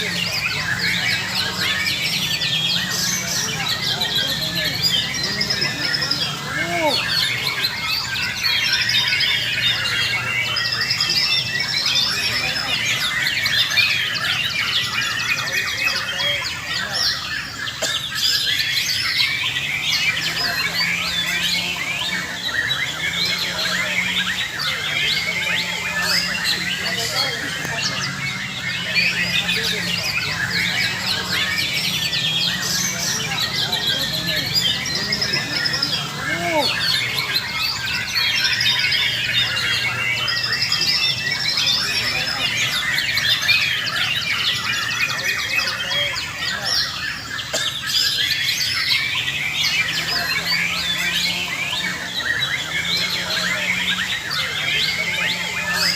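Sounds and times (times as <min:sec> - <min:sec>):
many songbirds singing: 0:00.0 - 0:55.9.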